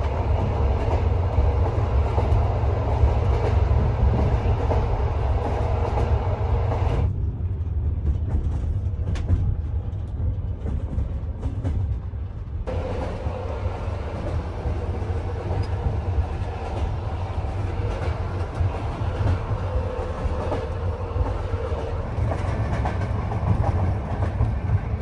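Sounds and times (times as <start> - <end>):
train carriage rumbling on rails: 0.0 - 25.0.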